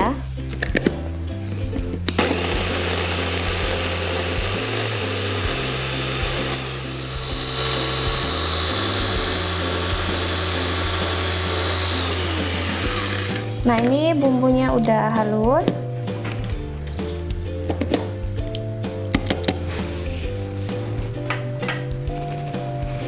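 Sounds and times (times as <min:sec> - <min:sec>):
electric food chopper grinding: 0:02.1 - 0:13.6.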